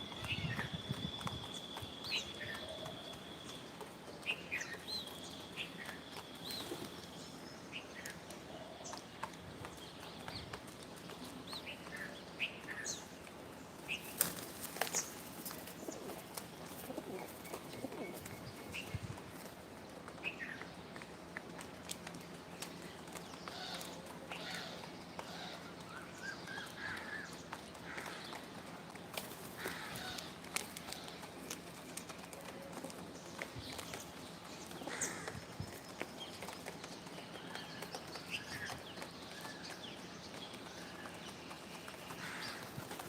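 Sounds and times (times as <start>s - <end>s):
birds chirping: 0.0s - 43.0s
wing flaps: 14.0s - 18.9s.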